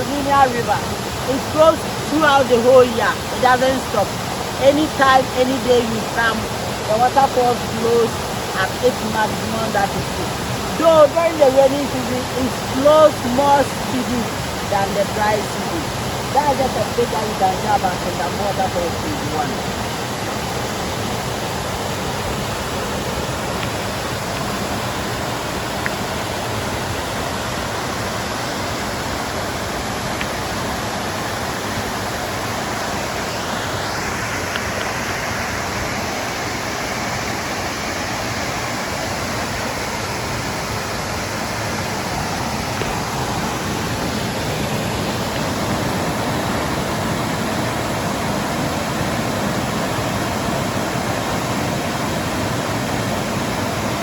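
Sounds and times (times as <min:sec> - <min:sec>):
waterfall rushing over rock: 0:00.0 - 0:54.0.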